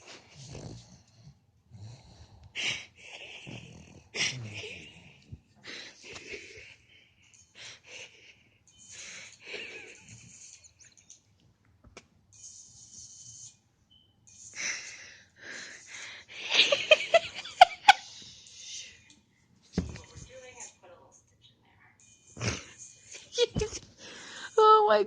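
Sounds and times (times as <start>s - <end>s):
dog snorting: 0.0s - 2.4s, 3.5s - 4.6s
dog snoring: 0.2s - 2.7s, 3.4s - 5.3s.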